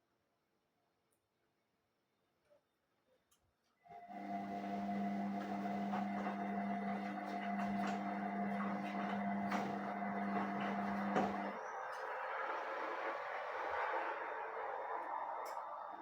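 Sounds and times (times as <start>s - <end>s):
washing machine electric hum: 3.9s - 16.0s.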